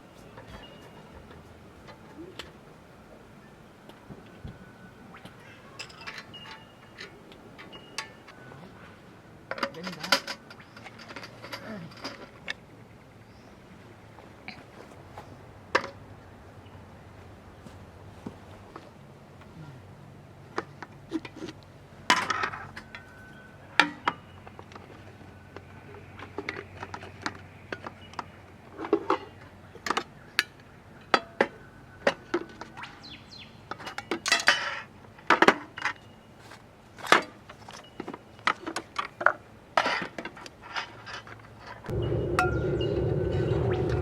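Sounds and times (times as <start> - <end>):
cookware and utensils clinking: 5.1 - 8.4.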